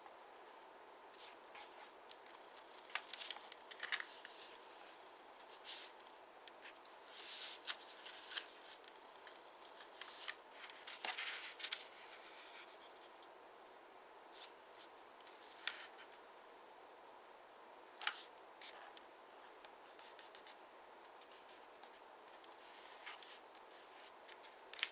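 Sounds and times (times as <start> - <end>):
paper rustling and creasing: 1.1 - 6.0, 6.6 - 13.0, 21.2 - 24.9.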